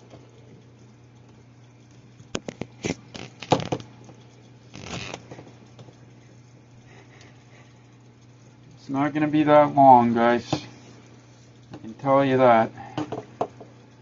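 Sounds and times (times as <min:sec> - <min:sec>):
sharp clicks and knocks: 0:02.3 - 0:03.9.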